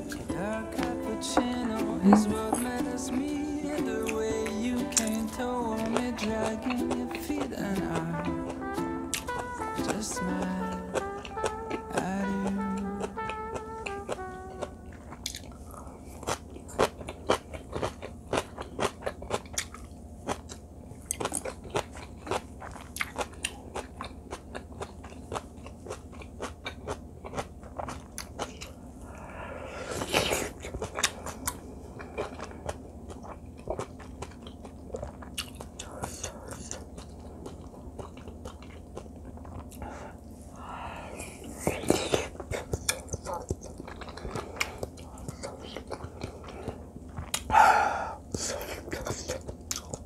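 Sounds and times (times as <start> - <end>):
person chewing: 0.0 - 50.0
mouth clicks: 41.6 - 50.0.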